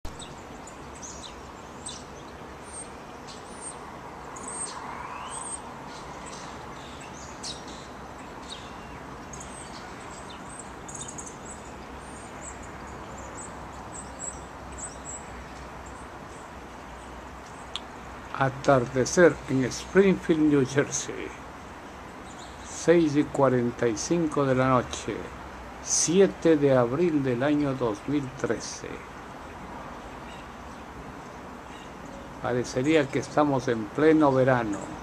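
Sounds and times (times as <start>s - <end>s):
songbirds chirping: 0.0s - 35.0s
outdoor background hiss: 0.1s - 35.0s.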